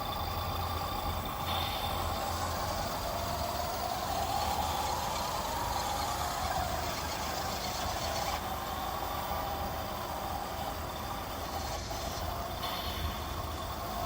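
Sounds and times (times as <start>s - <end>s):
electric motor whining: 0.0s - 14.0s
steady hiss: 0.0s - 14.0s.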